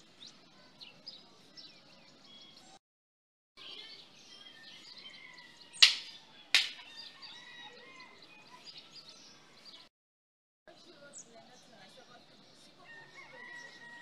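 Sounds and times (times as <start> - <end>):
birds chirping: 0.0 - 2.8, 3.6 - 9.9
faint outdoor background: 0.0 - 2.8, 3.6 - 9.9, 10.6 - 14.0.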